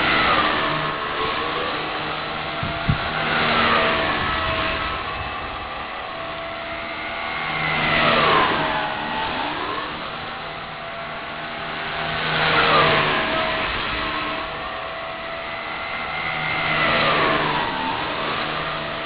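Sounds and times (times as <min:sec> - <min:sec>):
rc helicopter flying past: 0:00.0 - 0:19.0.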